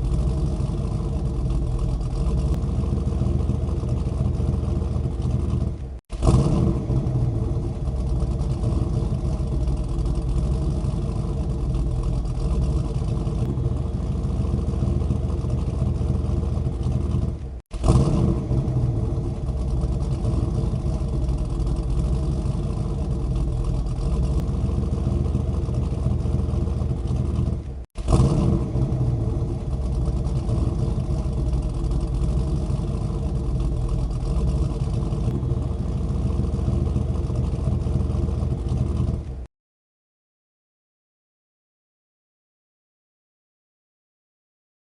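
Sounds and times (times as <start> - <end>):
engine running with low rumble: 0.0 - 39.5.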